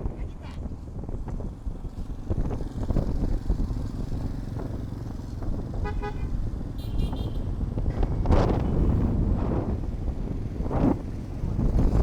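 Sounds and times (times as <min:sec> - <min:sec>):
road traffic rumble: 0:00.0 - 0:12.0
wind on microphone: 0:00.0 - 0:12.0
vehicle horn toot: 0:05.8 - 0:07.5.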